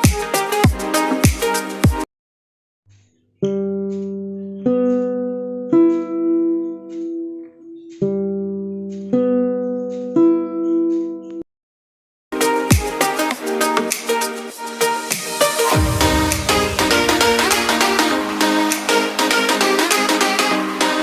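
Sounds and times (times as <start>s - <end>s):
guitar chords ringing: 3.4s - 11.4s, 12.4s - 21.0s.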